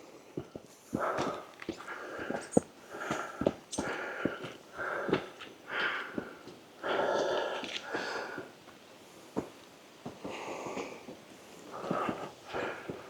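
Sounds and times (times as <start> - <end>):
footsteps clicking: 0.4 - 6.6, 9.4 - 13.0
person breathing hard: 0.9 - 8.5, 10.2 - 13.0.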